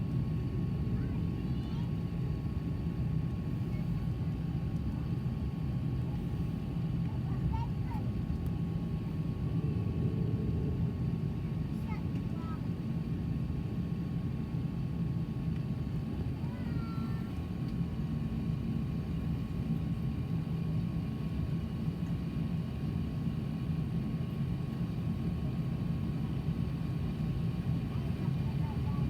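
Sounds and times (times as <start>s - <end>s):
airliner cabin rumble: 0.0s - 29.0s
faint engine whine: 0.0s - 29.0s.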